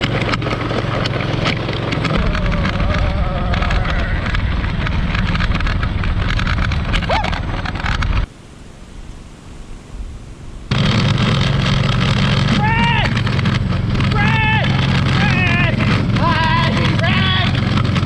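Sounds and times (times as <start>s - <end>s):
engine clattering knocks: 0.0s - 8.3s, 10.7s - 18.0s
small engine buzzing: 10.7s - 18.0s.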